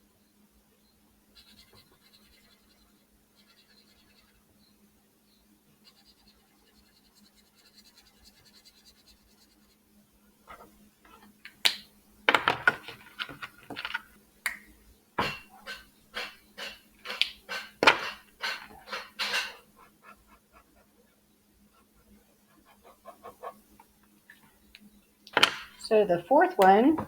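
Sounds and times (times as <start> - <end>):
pencil scratching on paper: 1.4 - 4.4, 5.8 - 9.9, 21.7 - 23.7.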